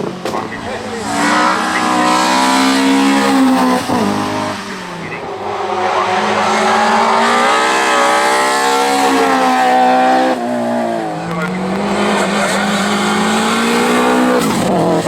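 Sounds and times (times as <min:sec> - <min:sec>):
race car engine accelerating: 0:00.0 - 0:15.0.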